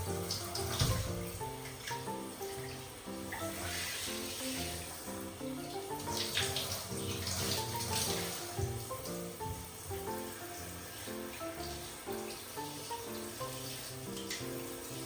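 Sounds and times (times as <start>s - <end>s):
background music: 0.0s - 15.0s
running water: 0.0s - 15.0s.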